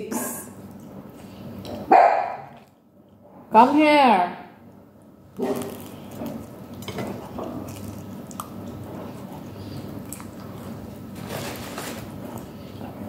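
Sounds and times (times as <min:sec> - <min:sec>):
small crunches: 0:05.4 - 0:09.4
wet chewing mouth sounds: 0:05.4 - 0:11.0.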